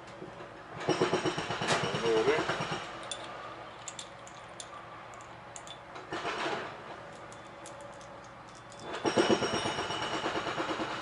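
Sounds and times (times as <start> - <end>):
tools clicking and tapping: 2.8 - 6.0, 7.1 - 9.6.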